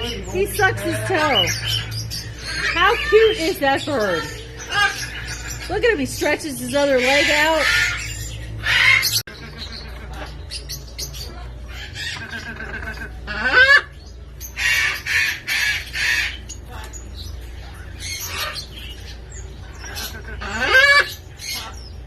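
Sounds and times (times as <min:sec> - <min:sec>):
steady low hum: 0:00.0 - 0:22.0
parrot harsh screeches: 0:19.8 - 0:21.8.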